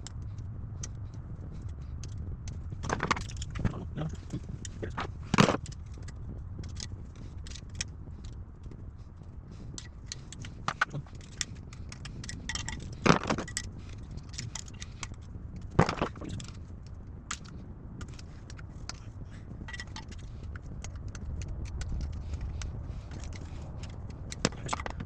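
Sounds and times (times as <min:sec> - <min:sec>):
small metal parts clinking: 0:09.8 - 0:16.6, 0:17.3 - 0:22.1.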